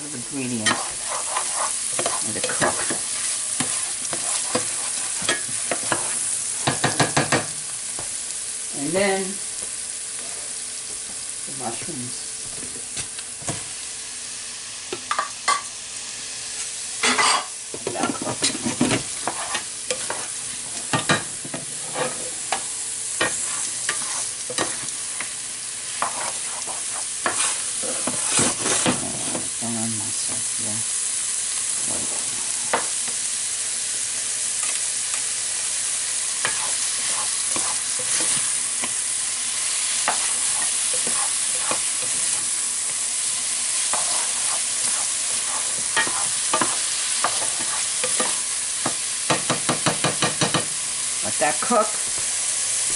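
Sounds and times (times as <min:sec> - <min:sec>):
mushrooms sizzling in frying pan: 0:00.0 - 0:52.9
utensil scraping pan: 0:00.4 - 0:07.2, 0:17.0 - 0:29.5, 0:36.4 - 0:39.0, 0:39.8 - 0:42.5, 0:43.8 - 0:50.6.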